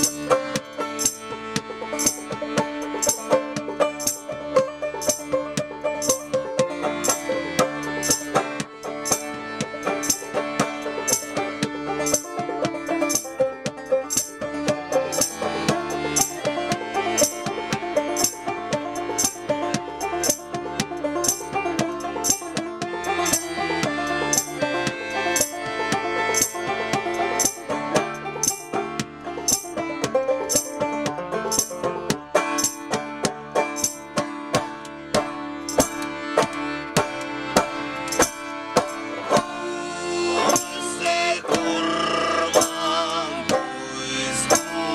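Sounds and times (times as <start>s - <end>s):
banjo-led folk punk: 0.0s - 44.9s
sharp high percussion hits: 32.5s - 33.0s.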